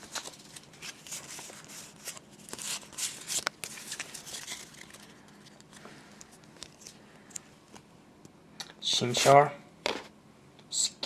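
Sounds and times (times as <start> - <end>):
foil wrapper crinkling and tearing: 0.0 - 5.7
cards rustling and clicking: 0.0 - 7.8.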